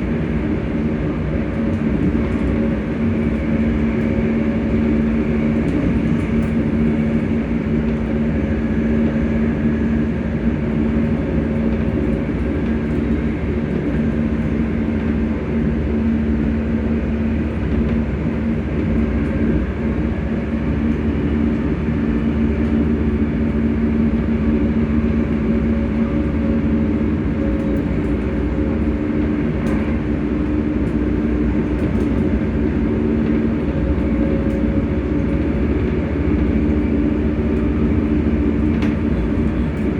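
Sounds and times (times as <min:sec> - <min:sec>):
electric train motors humming: 0:00.0 - 0:39.9
train rumble: 0:00.0 - 0:39.9.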